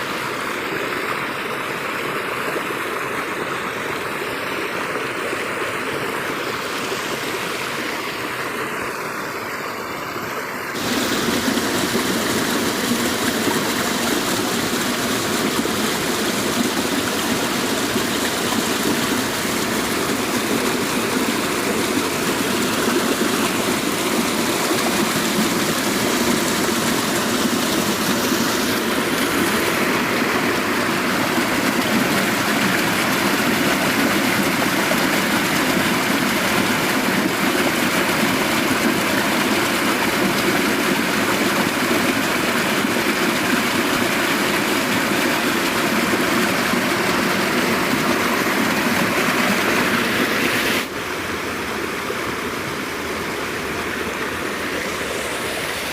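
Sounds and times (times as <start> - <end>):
stream water rushing: 0.0 - 55.9.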